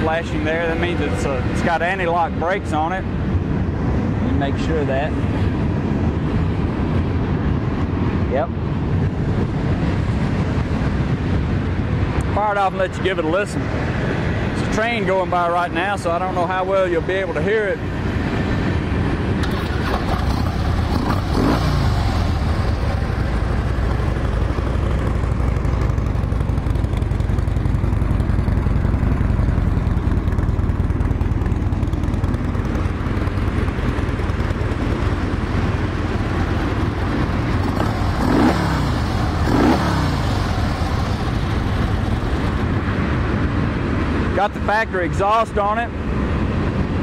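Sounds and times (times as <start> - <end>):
passing train rumbling: 15.8 - 44.8
motorcycle engine revving: 19.3 - 43.2.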